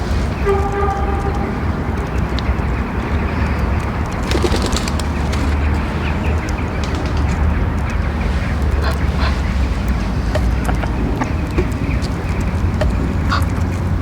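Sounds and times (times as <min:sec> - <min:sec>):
continuous low rumble: 0:00.0 - 0:14.0
bird call: 0:04.2 - 0:07.1.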